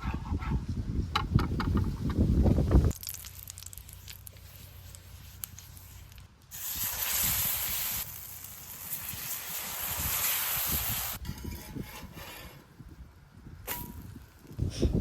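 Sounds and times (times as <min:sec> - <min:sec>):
food sizzling in hot oil: 0:06.5 - 0:11.2.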